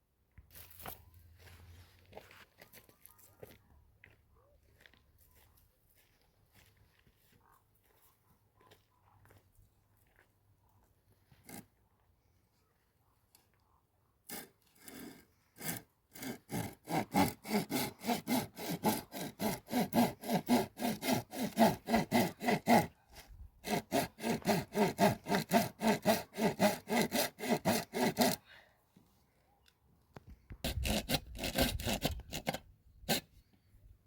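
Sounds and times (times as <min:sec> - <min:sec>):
hand saw cutting wood: 0:11.4 - 0:11.7, 0:14.2 - 0:28.4, 0:30.5 - 0:33.6.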